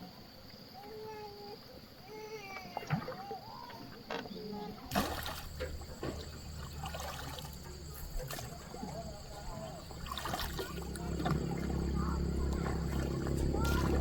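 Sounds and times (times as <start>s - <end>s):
water splashing and trickling: 4.8s - 14.0s.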